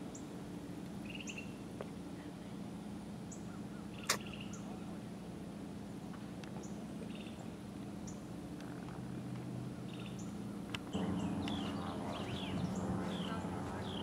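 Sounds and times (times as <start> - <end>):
low outdoor hum: 0.0 - 14.0
birds chirping: 1.0 - 1.7, 3.2 - 5.2, 5.8 - 14.0.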